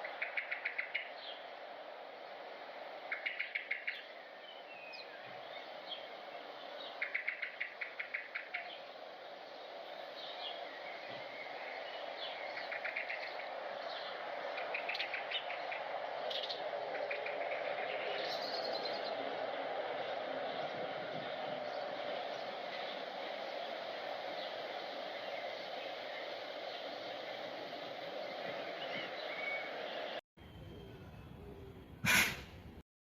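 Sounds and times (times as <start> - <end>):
steady background hiss: 0.0 - 32.8
bird trilling calls: 30.7 - 32.5.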